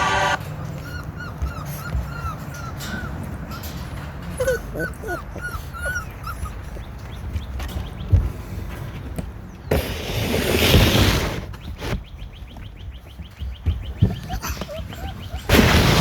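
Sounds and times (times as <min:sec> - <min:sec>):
puppies whining: 0:00.0 - 0:08.3, 0:13.2 - 0:16.0
puppies whimpering and squeaking: 0:00.2 - 0:08.3, 0:13.2 - 0:16.0.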